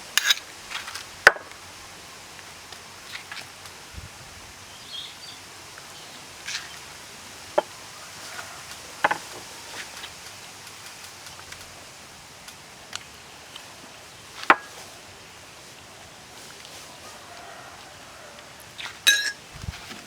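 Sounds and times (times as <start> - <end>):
steady low hiss: 0.0 - 20.0
sharp wooden knocks: 9.0 - 9.2.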